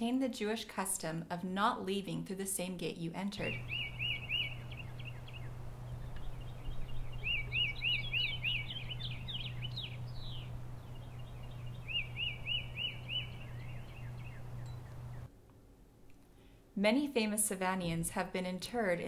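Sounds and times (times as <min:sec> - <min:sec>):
bird chirps: 0:03.4 - 0:15.3
songbird whistling notes: 0:03.4 - 0:15.3
steady low hum: 0:03.4 - 0:16.4.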